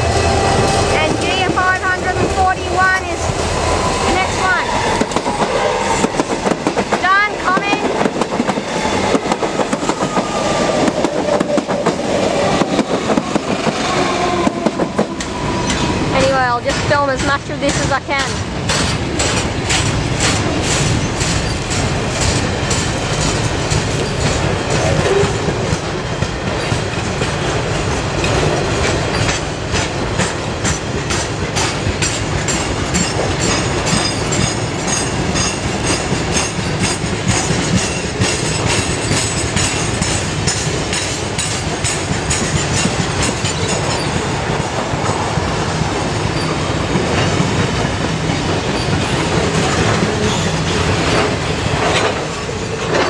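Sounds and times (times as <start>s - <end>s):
freight wagon wheels clacking: 16.2s - 53.0s.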